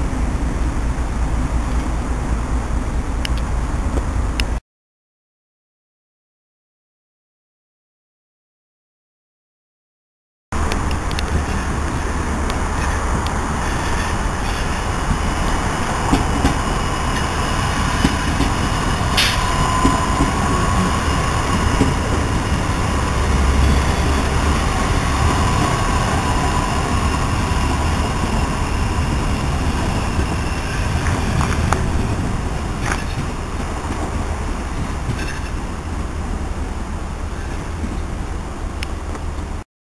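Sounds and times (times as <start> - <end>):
train wheels rumbling on rails: 10.6 - 39.6.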